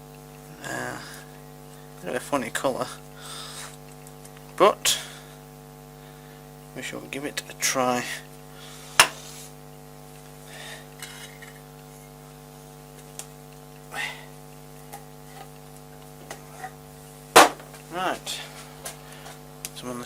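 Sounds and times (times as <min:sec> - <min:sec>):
steady electrical hum: 0:00.0 - 0:20.0.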